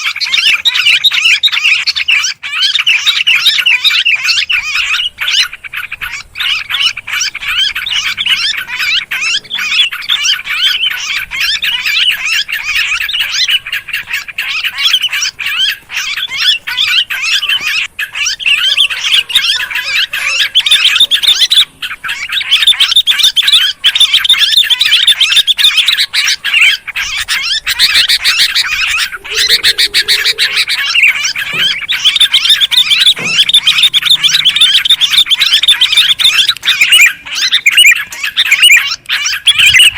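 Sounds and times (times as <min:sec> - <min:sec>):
bulbuls chattering calls: 0:00.0 - 0:39.9.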